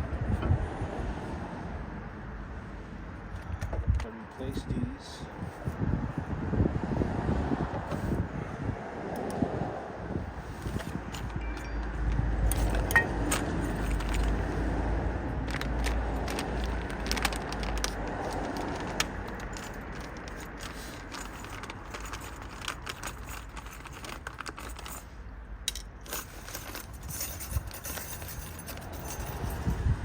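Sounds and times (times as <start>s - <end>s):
metal parts clinking and scraping: 10.5s - 14.8s, 15.4s - 30.0s.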